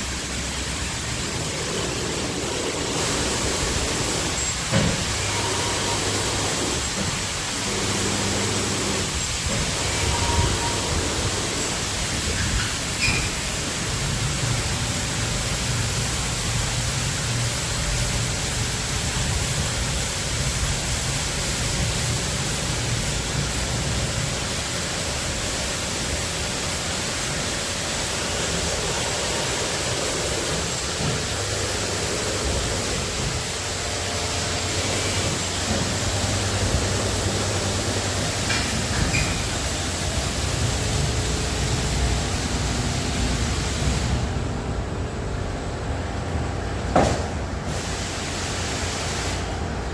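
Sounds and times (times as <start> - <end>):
water spray rushing: 0.0 - 44.5, 47.0 - 49.9.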